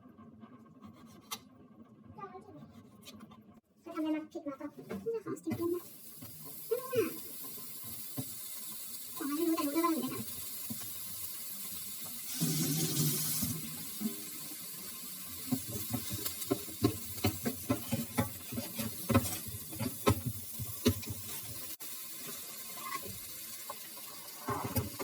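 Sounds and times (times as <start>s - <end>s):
utensils and dishes knocking: 15.5s - 21.4s.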